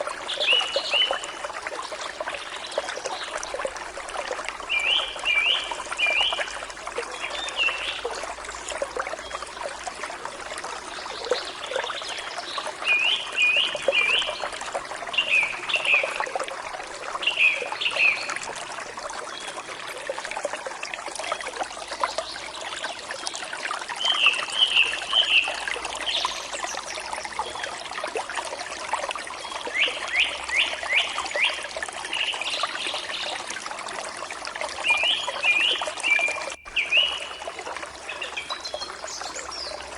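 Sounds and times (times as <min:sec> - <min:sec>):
stream trickling: 0:00.0 - 0:39.9
songbird singing: 0:04.6 - 0:09.6, 0:10.6 - 0:16.3, 0:17.2 - 0:18.5, 0:24.0 - 0:27.8, 0:34.8 - 0:39.9.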